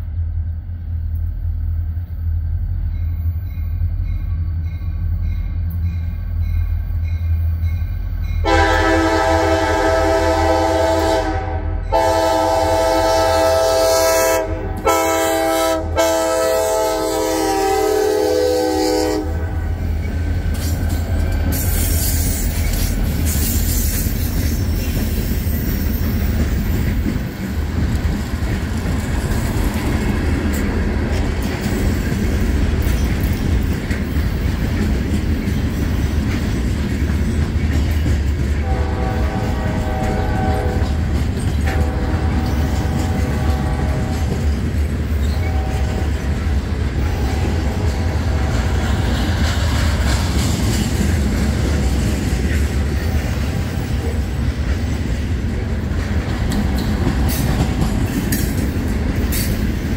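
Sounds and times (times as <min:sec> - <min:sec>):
freight train rumbling past: 0:00.0 - 0:59.9
faint locomotive horn: 0:08.4 - 0:19.8, 0:38.6 - 0:44.6, 0:45.2 - 0:49.2
train wheels clattering on rails: 0:19.1 - 0:59.9.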